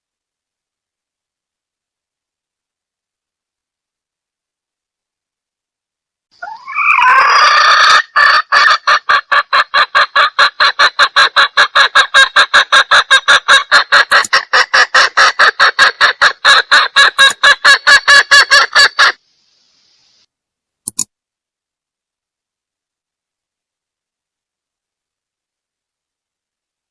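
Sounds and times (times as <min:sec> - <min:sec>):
hen rising call: 0:06.3 - 0:09.9
hen clucking: 0:06.4 - 0:19.2
short click: 0:20.8 - 0:21.1.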